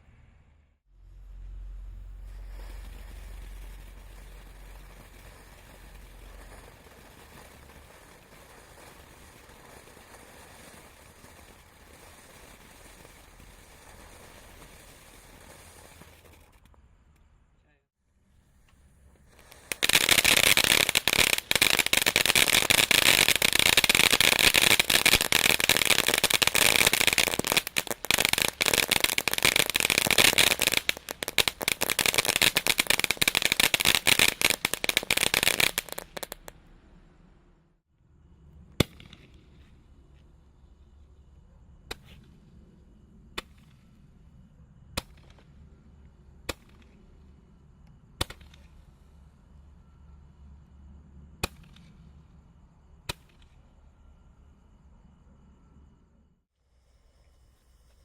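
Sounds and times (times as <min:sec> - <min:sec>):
firework fountain hissing crackle: 0:01.4 - 0:17.3, 0:18.2 - 0:37.4
sharp firework pops: 0:02.2 - 0:17.3, 0:18.6 - 0:36.8, 0:38.8 - 0:39.8, 0:41.8 - 0:42.4, 0:43.3 - 0:44.0, 0:44.9 - 0:45.6, 0:46.4 - 0:47.3, 0:48.1 - 0:49.2, 0:51.4 - 0:52.2, 0:53.0 - 0:53.6.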